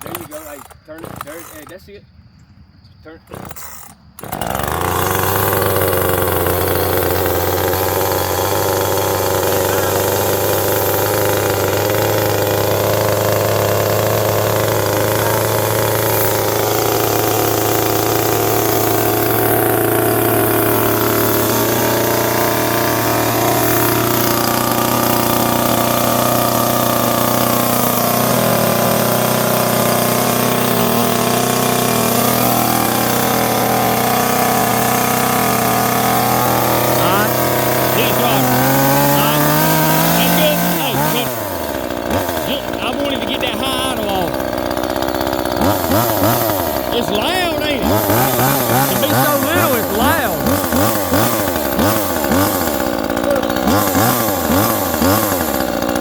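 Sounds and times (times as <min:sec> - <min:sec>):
chainsaw engine running: 0:00.0 - 0:02.0, 0:03.2 - 0:56.0.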